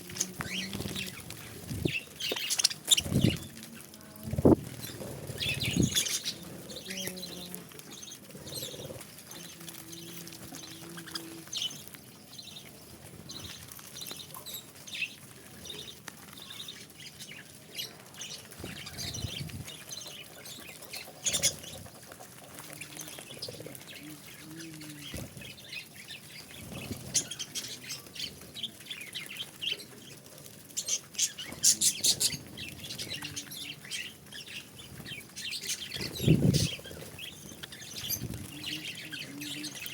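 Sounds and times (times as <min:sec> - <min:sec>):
budgerigars chirping: 0:01.8 - 0:03.5, 0:04.8 - 0:07.2, 0:18.6 - 0:22.0.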